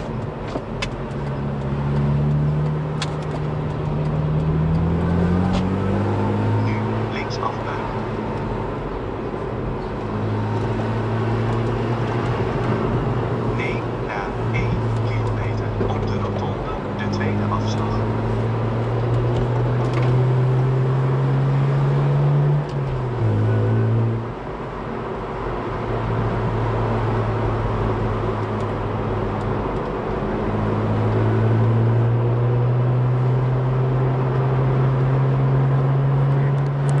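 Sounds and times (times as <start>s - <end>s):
car engine while driving: 0.0s - 37.0s
road noise: 0.0s - 37.0s.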